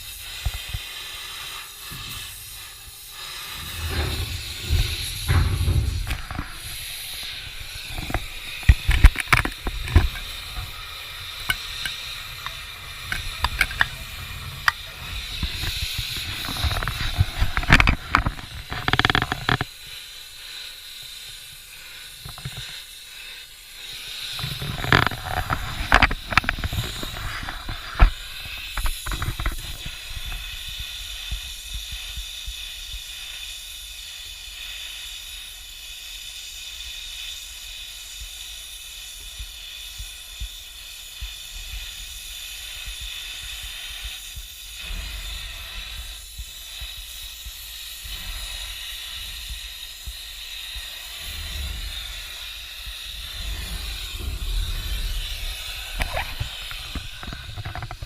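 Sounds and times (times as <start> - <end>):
steady hiss: 0.0 - 58.0
metal tools knocking and clanking: 11.4 - 14.9.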